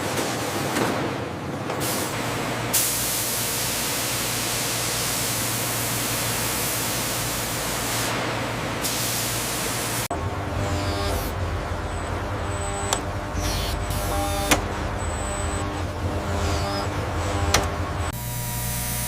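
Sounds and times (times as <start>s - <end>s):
low hum: 10.1s - 19.0s.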